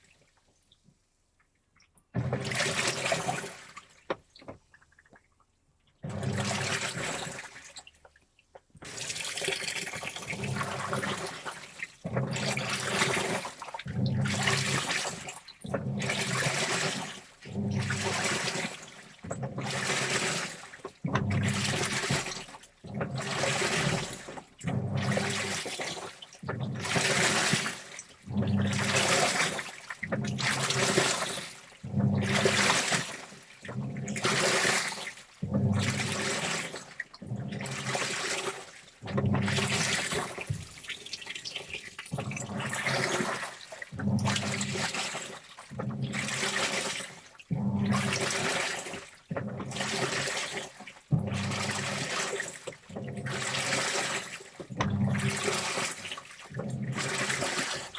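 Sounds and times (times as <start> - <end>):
water sloshing in washing machine: 1.8 - 57.9
washing machine motor humming: 6.0 - 7.5, 8.8 - 57.9.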